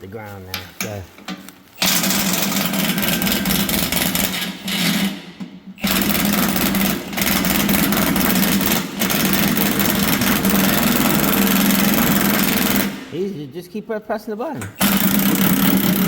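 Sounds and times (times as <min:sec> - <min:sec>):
lift motor and hydraulic pump humming: 0:01.8 - 0:13.1.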